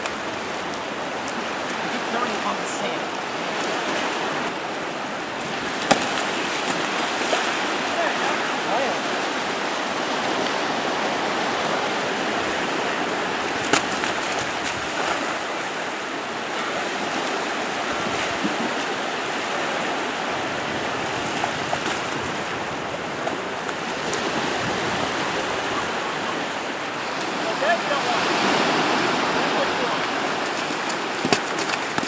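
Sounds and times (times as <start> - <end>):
ocean surf rushing: 0.0 - 32.0.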